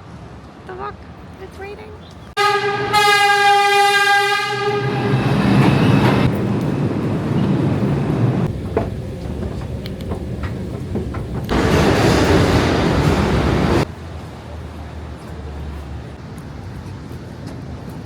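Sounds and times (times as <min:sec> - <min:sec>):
steady horn blast: 0:02.4 - 0:05.5
loud rumbling noise: 0:04.4 - 0:15.2.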